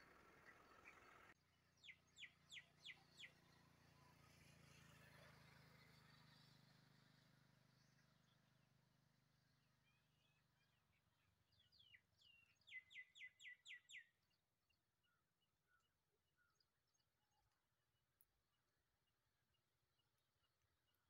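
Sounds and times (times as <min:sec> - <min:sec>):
bird chirping: 0:00.0 - 0:04.1, 0:09.8 - 0:14.4.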